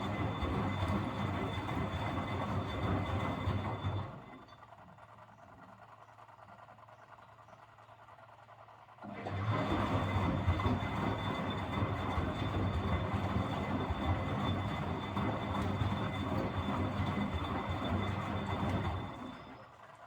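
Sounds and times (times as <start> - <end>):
washing machine drum motor running: 0.0 - 4.3, 9.0 - 19.8.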